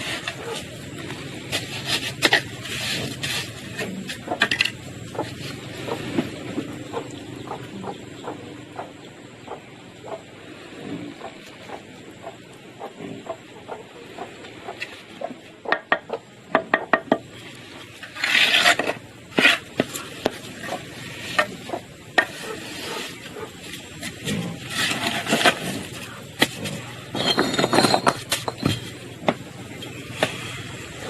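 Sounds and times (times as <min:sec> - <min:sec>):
scraping: 0:00.0 - 0:07.1, 0:17.6 - 0:30.8
tool taps and knocks: 0:15.7 - 0:17.3.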